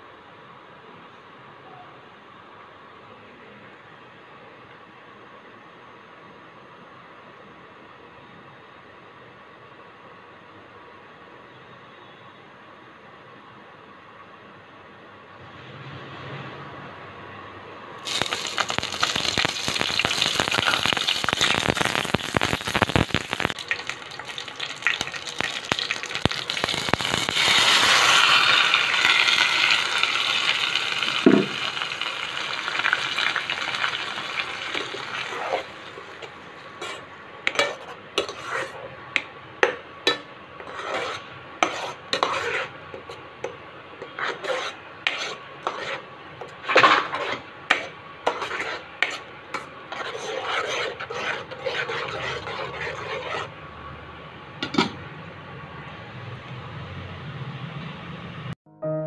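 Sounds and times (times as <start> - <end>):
leaves sizzling in hot oil: 18.0 - 36.8
spoon scraping a pan: 18.1 - 32.0, 32.6 - 39.0, 39.6 - 53.5.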